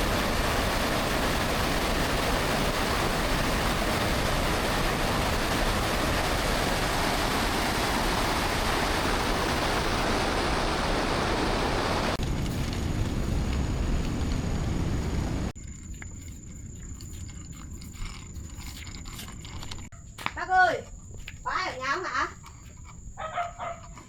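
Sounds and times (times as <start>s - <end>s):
low rumble: 0.0s - 15.8s.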